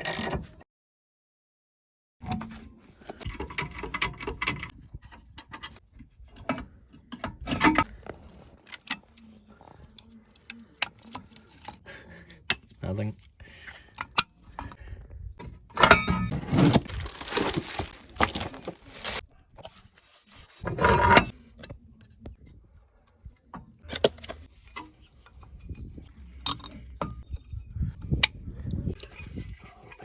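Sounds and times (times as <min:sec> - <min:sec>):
metal rattling and scraping: 0:02.2 - 0:11.8, 0:15.6 - 0:19.2, 0:20.5 - 0:21.3
metal tools clinking and rattling: 0:15.8 - 0:19.2.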